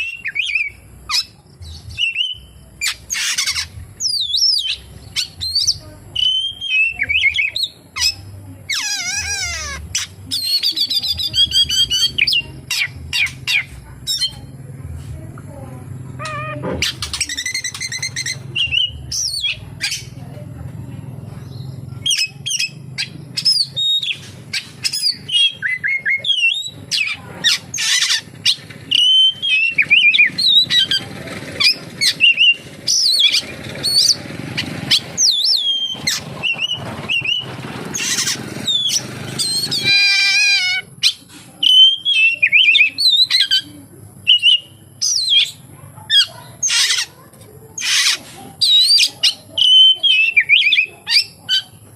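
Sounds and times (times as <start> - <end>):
songbird singing varied whistles: 0.0 - 14.4, 16.2 - 20.1, 21.5 - 31.0, 31.6 - 45.6, 47.8 - 51.7
bird rattling trill: 16.2 - 20.2, 21.4 - 43.6.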